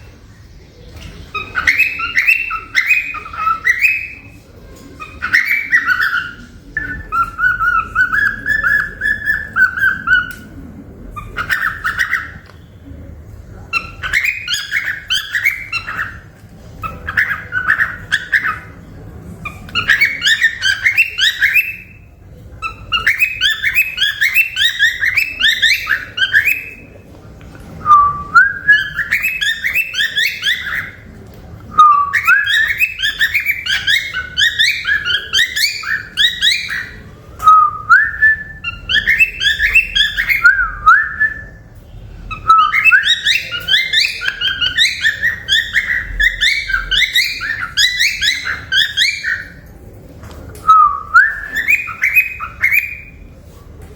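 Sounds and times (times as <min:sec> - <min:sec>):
cockatiel chirping and whistling: 0:01.3 - 0:04.2, 0:05.0 - 0:10.5, 0:11.2 - 0:12.4, 0:13.8 - 0:16.2, 0:16.8 - 0:18.7, 0:19.7 - 0:22.0, 0:22.6 - 0:26.8, 0:27.9 - 0:31.0, 0:31.7 - 0:41.6, 0:42.3 - 0:49.6, 0:50.6 - 0:53.2.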